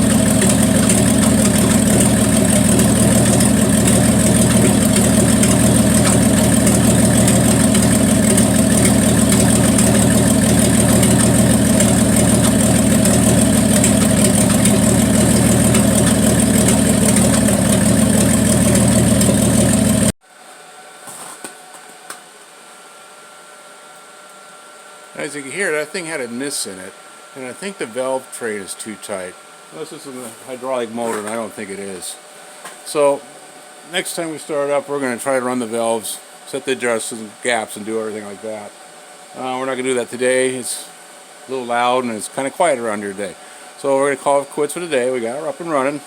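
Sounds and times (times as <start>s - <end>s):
car engine idling with a miss: 0.0s - 20.2s.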